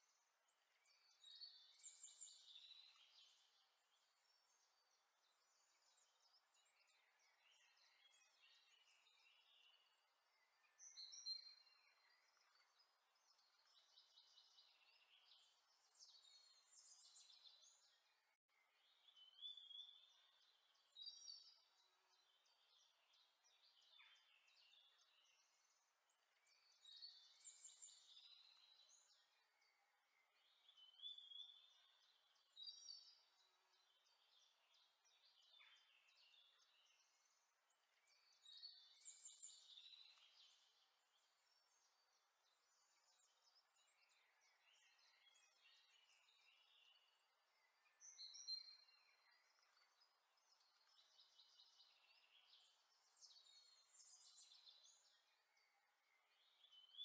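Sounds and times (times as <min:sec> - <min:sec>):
birds chirping and warbling: 0:00.1 - 0:57.0.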